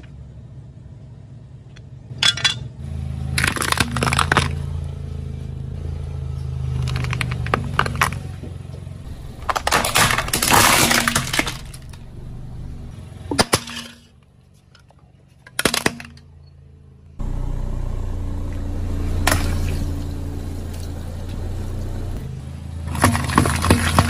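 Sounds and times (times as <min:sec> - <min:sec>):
objects crunching under car tyre: 0:03.3 - 0:04.8, 0:06.4 - 0:14.7, 0:18.6 - 0:22.3, 0:22.9 - 0:24.0
steady low hum: 0:08.2 - 0:13.2, 0:16.4 - 0:22.7
sharp glassy cracks: 0:09.0 - 0:14.1.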